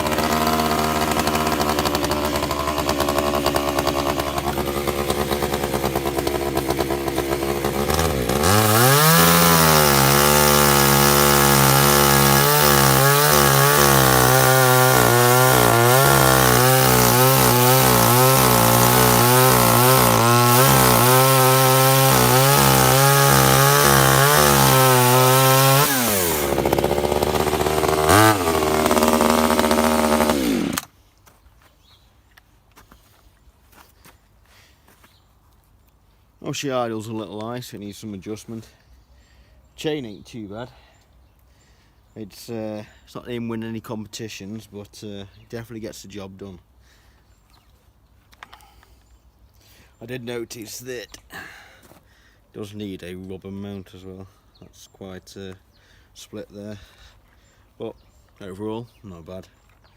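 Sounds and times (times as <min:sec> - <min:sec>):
chainsaw cutting through log: 0:00.0 - 0:31.0
chainsaw engine idling and revving: 0:00.0 - 0:31.0.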